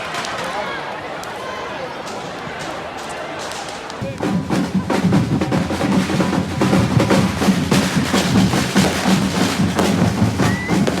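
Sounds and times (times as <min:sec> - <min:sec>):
drums beating fast rhythm: 0:04.0 - 0:11.0.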